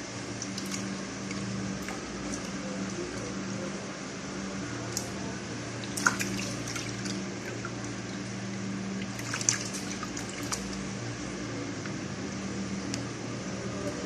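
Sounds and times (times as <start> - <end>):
low machine hum: 0.0 - 14.0
water splashing and dripping: 0.3 - 2.6, 5.8 - 8.3, 9.0 - 10.9.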